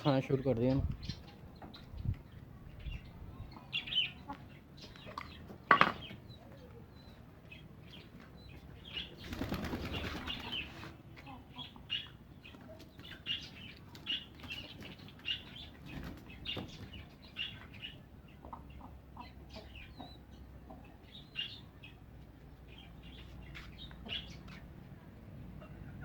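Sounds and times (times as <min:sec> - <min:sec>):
chicks cheeping: 0:00.0 - 0:24.8
hens clucking: 0:18.2 - 0:21.2.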